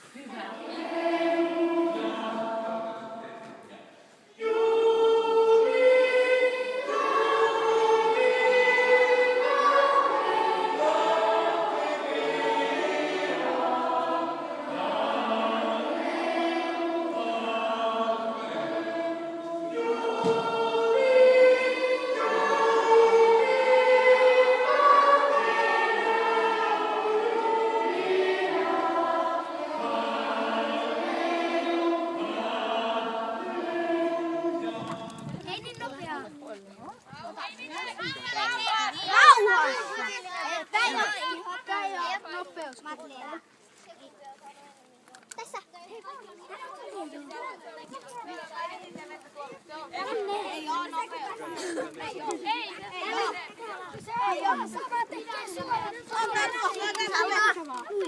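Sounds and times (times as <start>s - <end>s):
children's choir singing: 0.0s - 35.9s, 49.9s - 57.6s.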